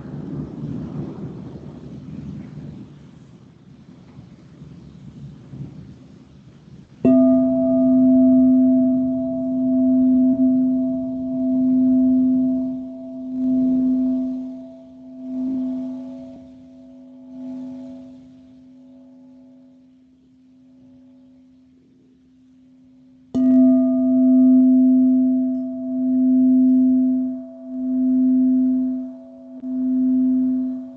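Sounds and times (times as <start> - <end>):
singing bowl ringing: 7.0 - 30.9.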